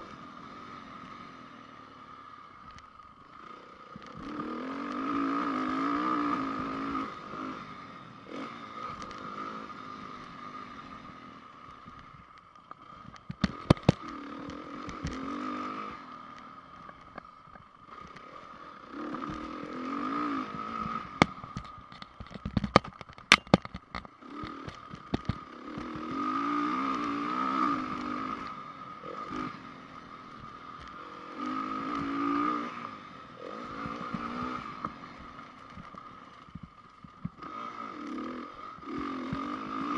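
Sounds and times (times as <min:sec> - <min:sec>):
motorcycle engine revving: 0:00.0 - 0:39.9
sharp knocks and rattles: 0:21.2 - 0:26.1.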